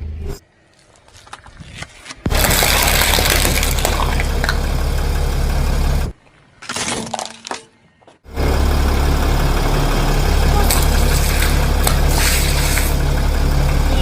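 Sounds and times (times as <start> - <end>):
tyre crushing brittle objects: 1.0 - 4.5, 6.6 - 7.8, 10.7 - 13.0
low engine rumble: 2.3 - 6.6, 8.2 - 14.0.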